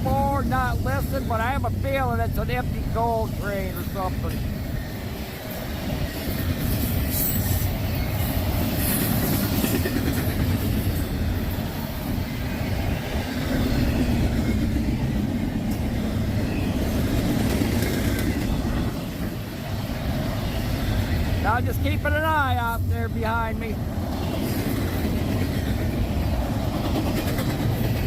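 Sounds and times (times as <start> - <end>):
freight train rumbling past: 0.0 - 28.0
wheels screeching: 3.9 - 21.5.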